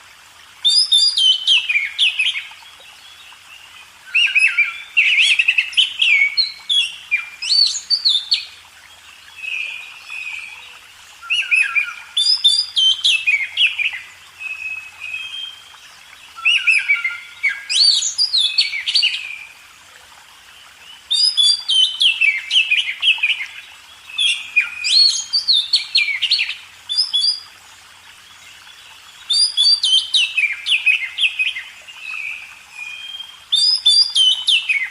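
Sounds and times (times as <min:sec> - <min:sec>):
songbird singing: 0:00.6 - 0:19.6, 0:20.4 - 0:34.9.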